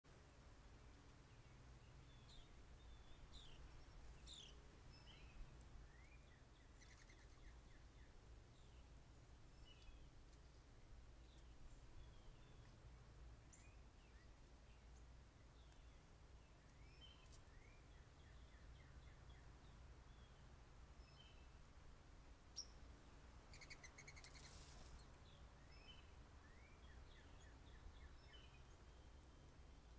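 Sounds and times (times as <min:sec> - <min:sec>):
faint bird chirps: 0:01.3 - 0:08.9, 0:22.5 - 0:22.8, 0:23.4 - 0:29.9
faint bird calls: 0:02.9 - 0:08.1, 0:23.5 - 0:25.1.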